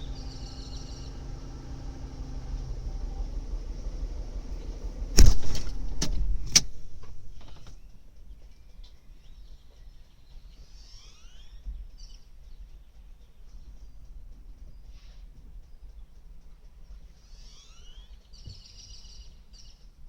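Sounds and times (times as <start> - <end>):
faint chirps: 0.0 - 5.0, 7.3 - 20.0
car engine rumble: 0.0 - 19.9
sharp clicks: 4.3 - 9.3.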